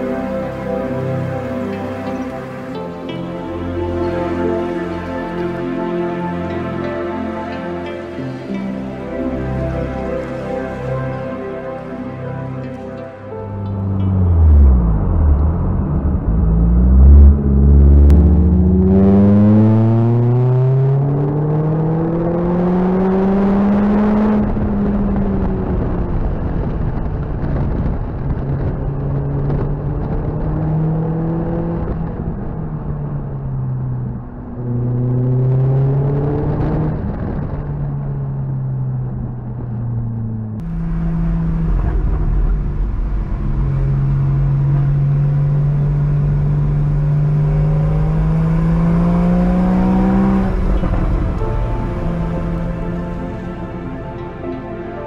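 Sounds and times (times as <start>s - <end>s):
car engine cruising with deep rumble: 0.0s - 55.0s
wind and road noise: 0.0s - 55.0s
car engine revving: 13.4s - 54.6s.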